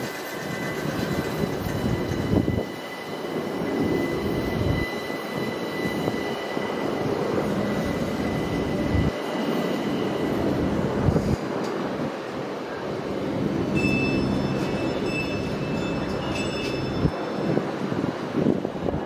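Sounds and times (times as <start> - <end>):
train rumbling: 0.0 - 19.0
thin high whine: 12.7 - 18.1.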